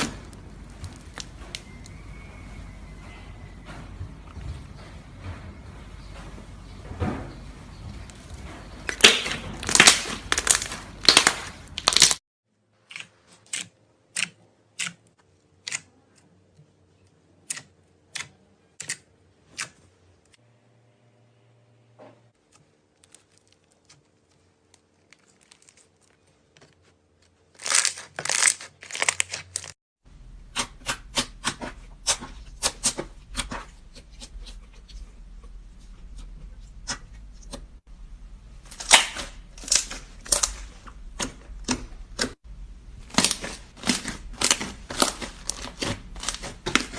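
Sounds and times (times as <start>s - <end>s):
slime crackling and popping: 8.9s - 12.2s, 27.6s - 29.8s, 38.7s - 40.8s, 43.0s - 46.9s.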